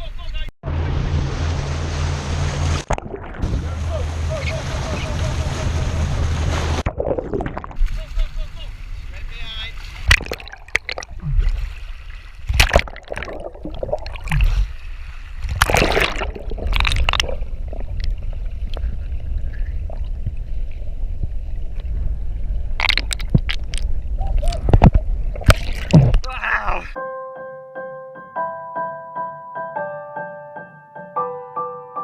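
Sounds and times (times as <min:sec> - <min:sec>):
steady low rumble: 0:00.6 - 0:09.4, 0:16.2 - 0:26.3
water sloshing and splashing: 0:00.7 - 0:26.8.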